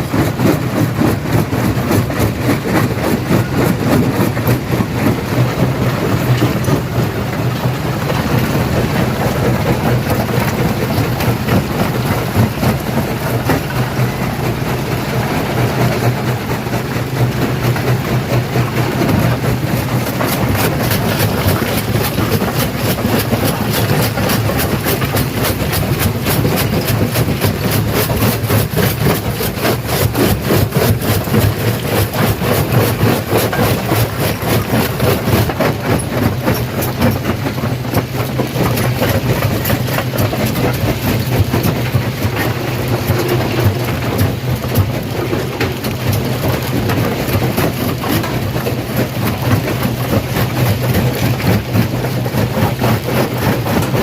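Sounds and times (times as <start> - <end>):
low machine hum: 0.0 - 54.0
rocks crunching in crusher: 0.0 - 54.0.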